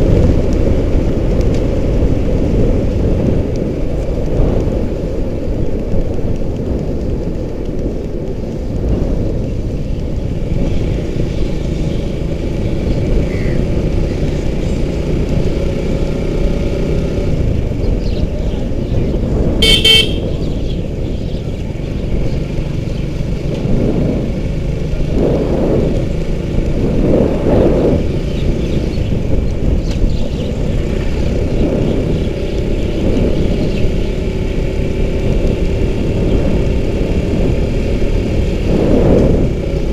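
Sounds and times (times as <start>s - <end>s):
motorcycle engine and road rumble: 0.0s - 39.9s
horn honk: 19.6s - 20.4s.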